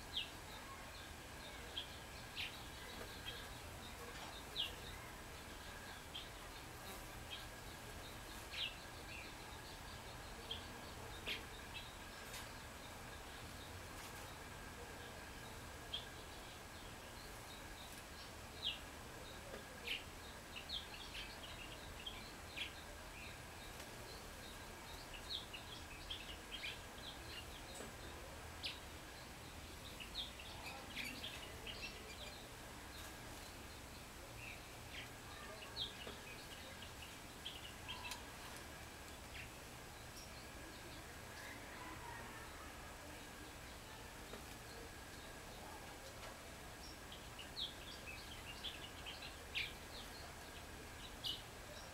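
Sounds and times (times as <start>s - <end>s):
songbirds chirping: 0.0s - 51.9s.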